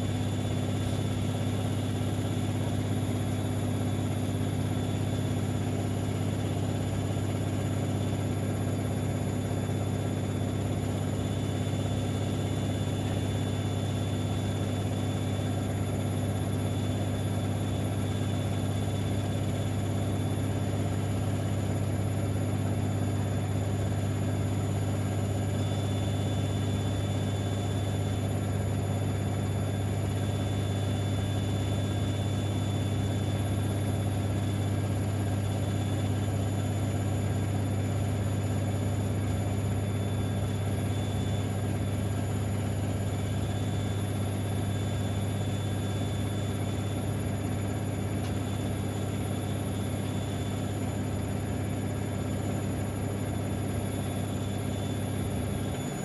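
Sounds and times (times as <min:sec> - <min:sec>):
washing machine humming: 0:00.0 - 0:56.0.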